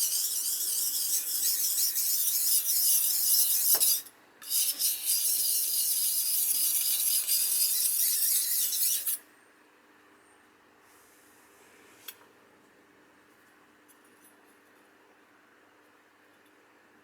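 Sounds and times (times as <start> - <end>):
knife scraping on whetstone: 0.0 - 9.2.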